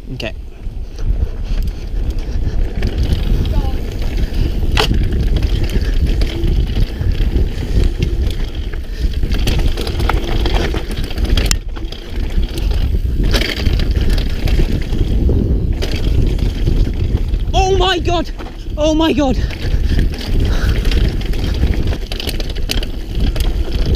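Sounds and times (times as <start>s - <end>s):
wind buffeting microphone: 0.0s - 23.9s
bike knocking and rattling: 0.2s - 23.9s
bike tyres rumbling over ground: 0.3s - 23.9s.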